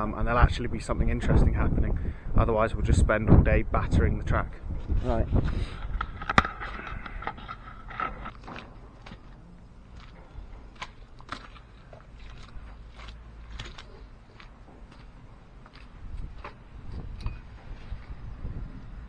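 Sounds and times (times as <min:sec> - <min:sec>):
low wind rumble: 0:00.0 - 0:19.0
small clicks and crunches: 0:05.8 - 0:17.0.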